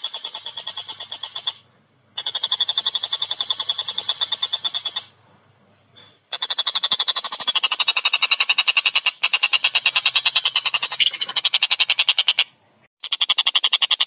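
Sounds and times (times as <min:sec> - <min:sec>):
kingfisher rattling call: 0:02.2 - 0:05.1, 0:06.3 - 0:14.0.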